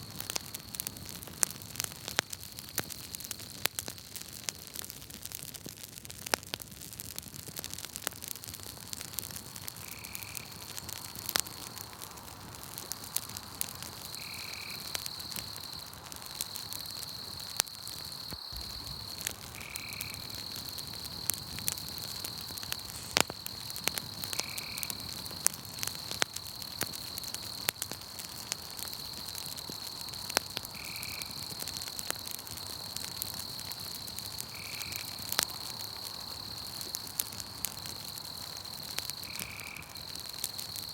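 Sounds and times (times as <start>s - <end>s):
campfire crackling and popping: 0.0s - 40.9s
night insects trilling: 8.6s - 40.9s.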